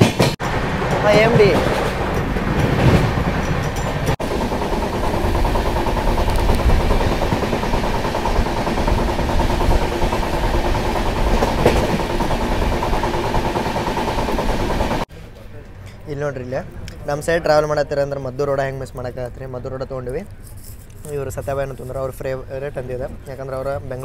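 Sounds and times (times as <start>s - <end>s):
train wheels rumbling on track: 0.0s - 15.1s.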